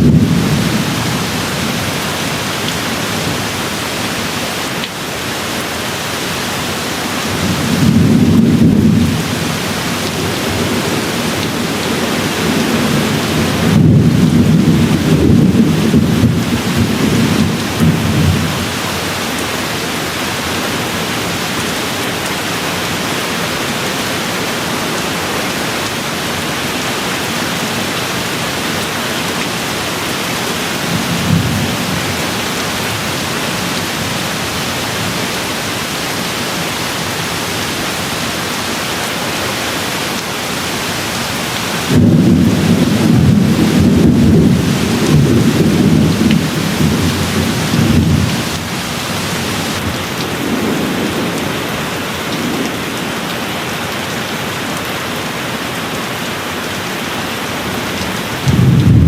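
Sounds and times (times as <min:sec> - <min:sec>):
distant thunder rumble: 0:00.0 - 0:02.1, 0:07.3 - 0:18.8, 0:41.8 - 0:51.6, 0:58.4 - 0:59.0
rain hiss: 0:00.0 - 0:59.0.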